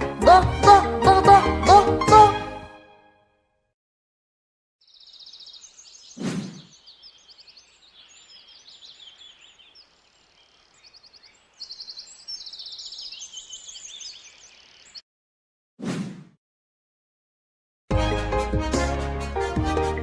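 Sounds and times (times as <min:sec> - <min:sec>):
songbirds chirping and trilling: 0:04.8 - 0:15.0.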